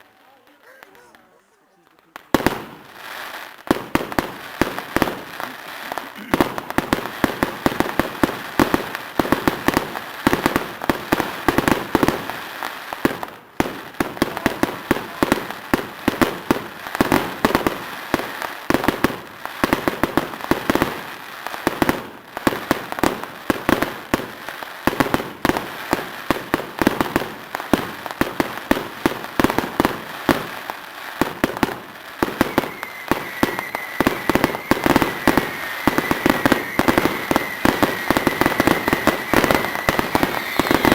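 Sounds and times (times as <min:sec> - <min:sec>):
fireworks bangs and crackles: 0:00.0 - 0:40.9
high thin whistling tone: 0:32.1 - 0:40.9.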